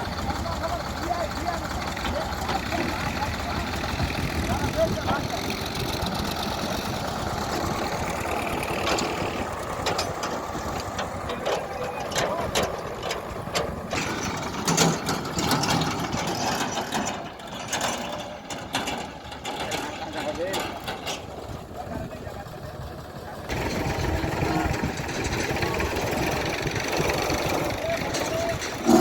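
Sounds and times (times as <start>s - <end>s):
tractor engine running: 0.0s - 29.0s
metallic clanks and knocks: 7.4s - 21.5s.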